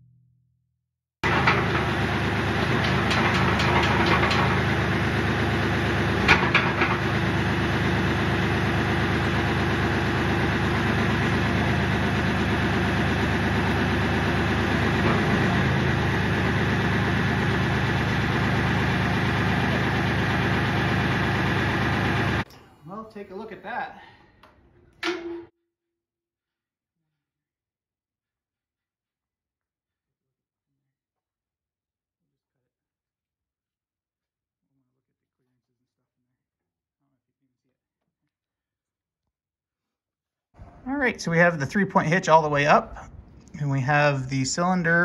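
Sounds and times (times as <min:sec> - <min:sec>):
tractor diesel engine idling: 0:01.2 - 0:22.5, 0:40.6 - 0:45.0.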